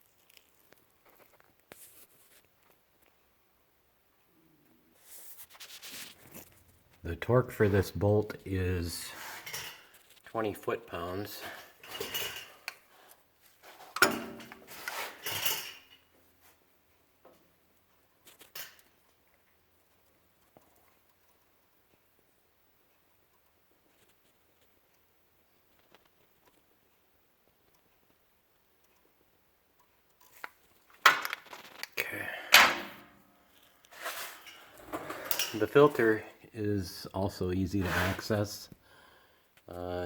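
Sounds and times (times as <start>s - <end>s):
hand tools clicking and scraping: 9.0s - 10.3s, 11.0s - 16.1s, 33.8s - 36.2s, 37.8s - 38.4s.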